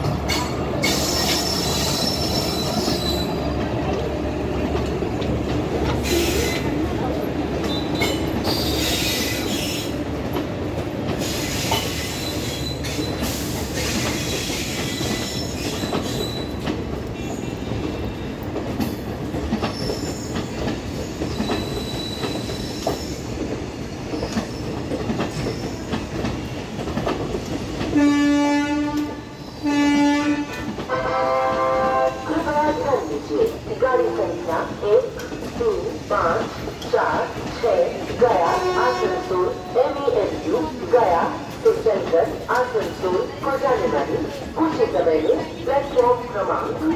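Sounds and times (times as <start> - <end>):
train wheels rumbling and clacking: 0.0 - 46.9
wheel squeals on rails: 0.3 - 3.5, 7.6 - 9.9, 11.2 - 17.6, 19.6 - 23.3
train horn blasts: 28.0 - 32.3.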